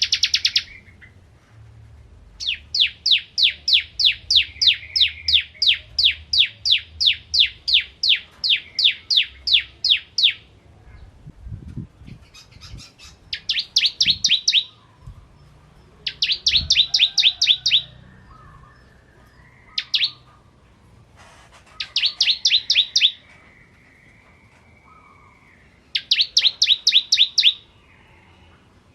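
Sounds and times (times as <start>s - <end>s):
bird singing sharp high notes: 21.8s - 23.4s, 24.8s - 27.7s.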